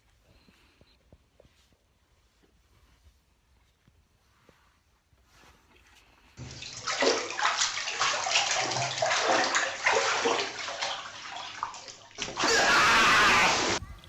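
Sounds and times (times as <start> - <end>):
water sloshing and splashing: 6.4 - 13.8.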